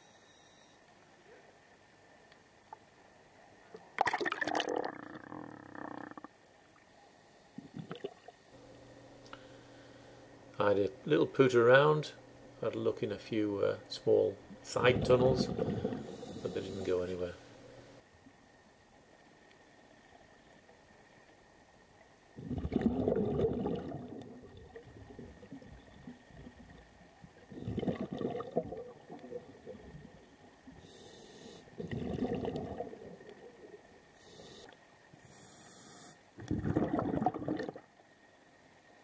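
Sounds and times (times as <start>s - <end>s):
gurgling exhaled bubbles: 3.9s - 6.3s, 7.6s - 8.3s, 14.6s - 17.0s, 22.4s - 30.4s, 31.7s - 34.0s, 36.4s - 37.9s
hissing regulator inhalations: 15.6s - 17.1s, 30.8s - 31.8s, 34.2s - 36.2s.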